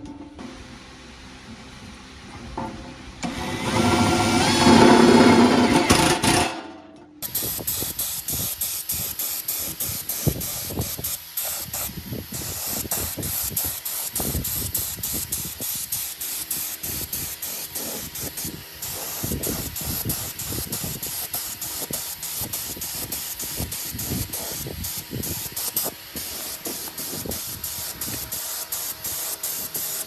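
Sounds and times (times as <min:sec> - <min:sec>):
steady spraying hiss: 0:07.2 - 0:30.0.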